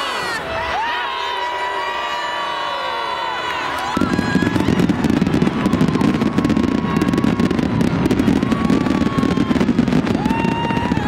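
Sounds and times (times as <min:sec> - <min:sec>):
fireworks fountains crackling: 0:03.4 - 0:11.0.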